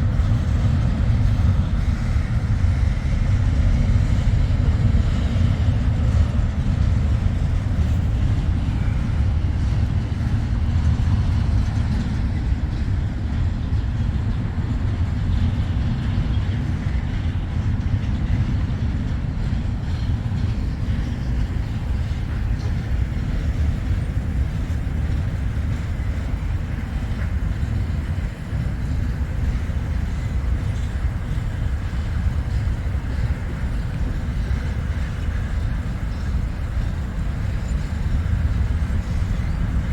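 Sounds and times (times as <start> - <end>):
tractor diesel engine running: 19.7 - 39.9.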